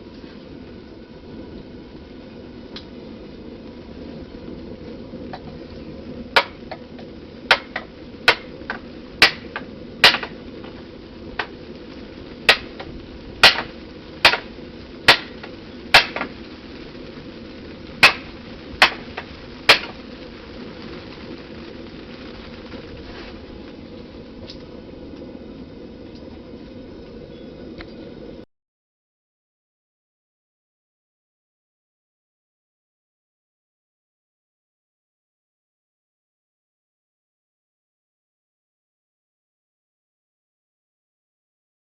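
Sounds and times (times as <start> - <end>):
steady rumble: 0.0 - 28.5.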